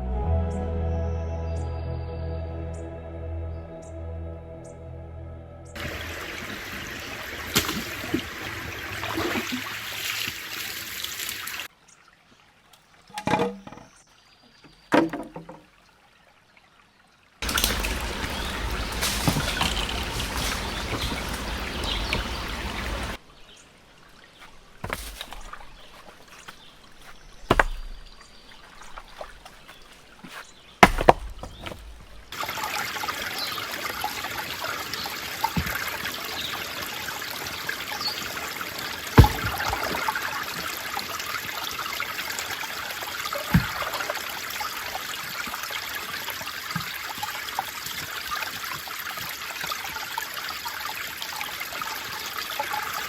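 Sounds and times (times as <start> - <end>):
creek water trickling: 5.8 - 53.0
sharp knocks: 27.5 - 28.2, 30.8 - 32.3, 39.2 - 39.9.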